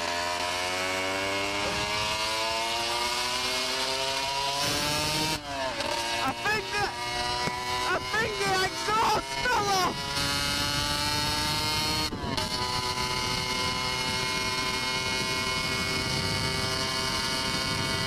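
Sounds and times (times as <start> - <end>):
motorcycle engine running: 0.0 - 18.0
wind rushing over microphone: 6.6 - 18.0.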